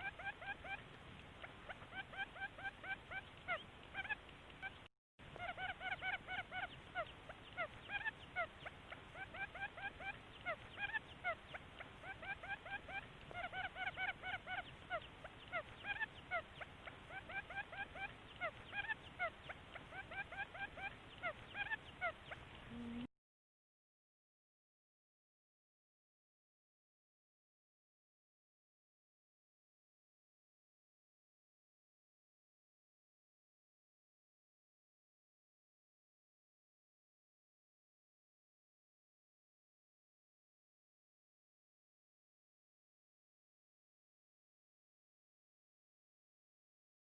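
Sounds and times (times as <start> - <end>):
quail rising chirps: 0.0 - 4.8, 5.4 - 23.1.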